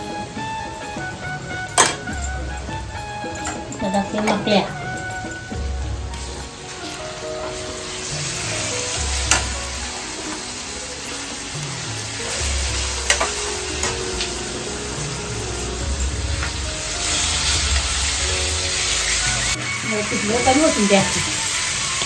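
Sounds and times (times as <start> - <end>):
spices sizzling in hot oil: 6.1 - 22.0.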